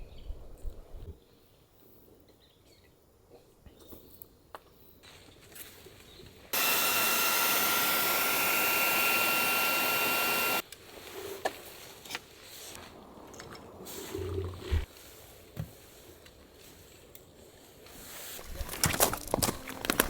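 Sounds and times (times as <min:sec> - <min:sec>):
electric air pump whirring: 0:06.6 - 0:10.6.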